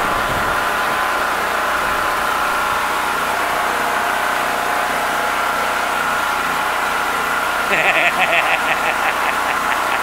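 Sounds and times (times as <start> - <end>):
heavy rain pouring: 0.0 - 3.8
engine-like hum: 0.0 - 10.0.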